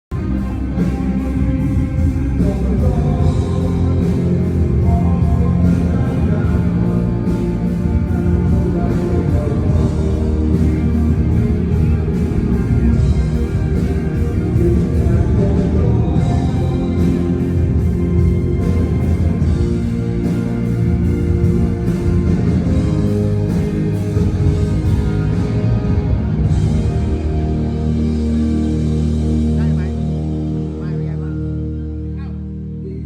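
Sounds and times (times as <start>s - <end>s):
person singing: 0.1s - 20.9s
drums beating: 0.1s - 30.2s
electric guitars: 0.1s - 33.0s.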